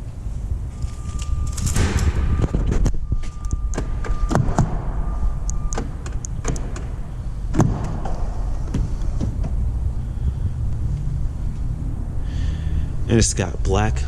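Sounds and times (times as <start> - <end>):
steady low rumble: 0.0 - 14.0
car door clicks and knocks: 5.7 - 9.6
heavy car door thud: 5.8 - 9.7.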